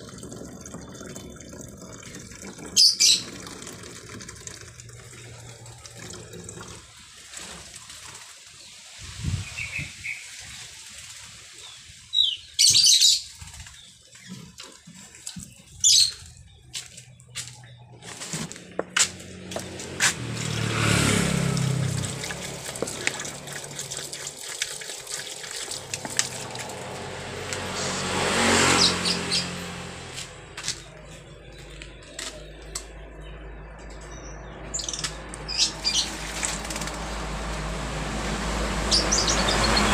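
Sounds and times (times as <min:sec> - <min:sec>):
bird wings splashing in water: 0:19.8 - 0:29.0, 0:35.5 - 0:39.8
starling harsh calls: 0:28.7 - 0:29.6, 0:34.8 - 0:36.8.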